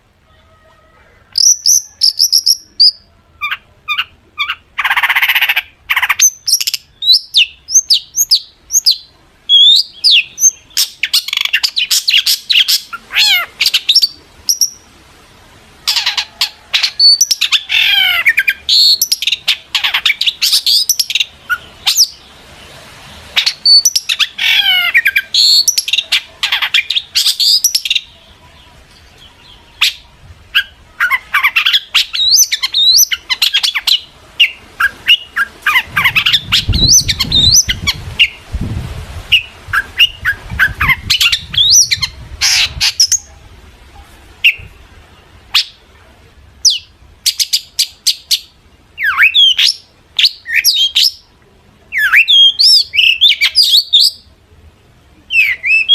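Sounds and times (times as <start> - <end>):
bird singing chirps and whistles: 1.4 - 13.0, 23.4 - 26.0, 30.6 - 38.4, 39.3 - 43.3, 46.6 - 51.2, 52.0 - 54.3, 55.3 - 55.9.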